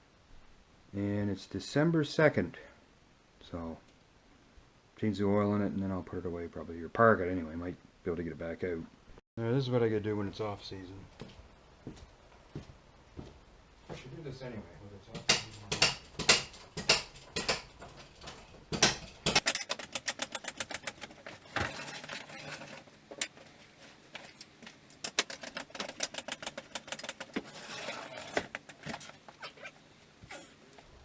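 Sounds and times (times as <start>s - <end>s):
light clicks and rattles: 19.4s - 30.8s.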